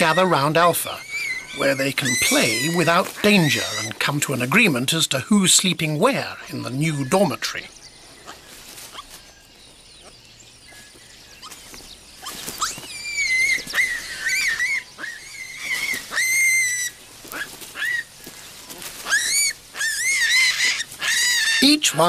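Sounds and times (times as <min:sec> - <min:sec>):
young baboons squealing: 0:00.0 - 0:04.1, 0:08.2 - 0:09.4, 0:10.7 - 0:22.0.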